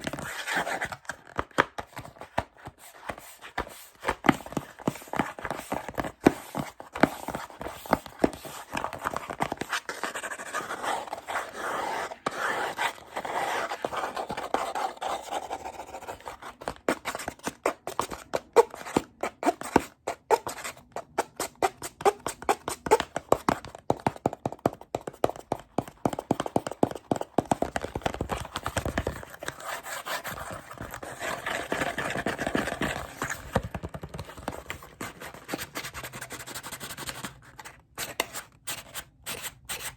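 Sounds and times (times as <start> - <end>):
tapping on plastic and cardboard: 16.5 - 29.6.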